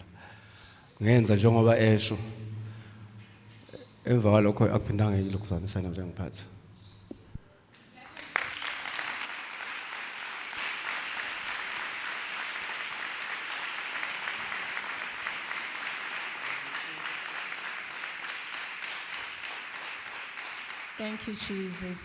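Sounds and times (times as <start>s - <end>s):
congregation applauding: 7.9s - 21.9s.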